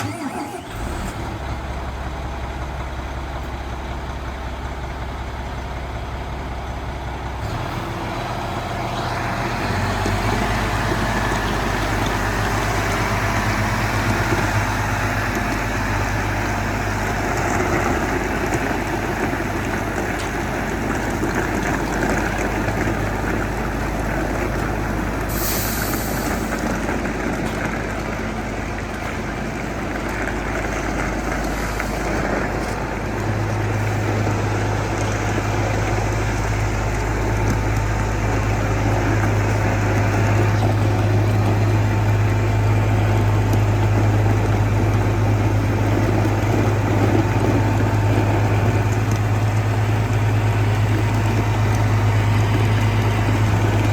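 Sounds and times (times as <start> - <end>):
tractor diesel engine running: 0.0 - 53.9
air hiss: 25.3 - 26.5.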